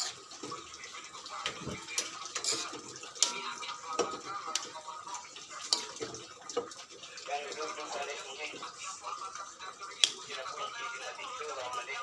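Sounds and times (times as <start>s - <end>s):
dishes and utensils clinking: 0.0s - 0.7s, 1.4s - 4.7s, 5.6s - 6.8s
running water: 0.0s - 12.0s.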